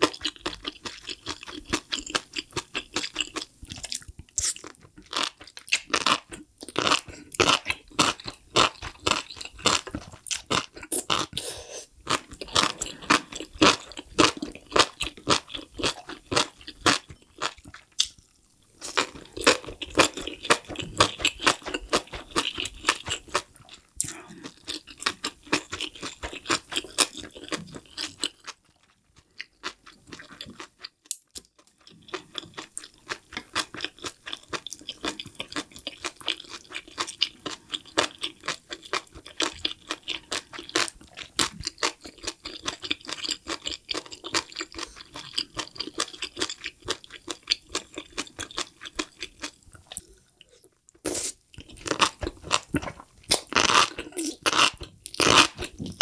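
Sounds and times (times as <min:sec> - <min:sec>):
wet chewing clicks and squeaks: 0:00.1 - 0:07.7.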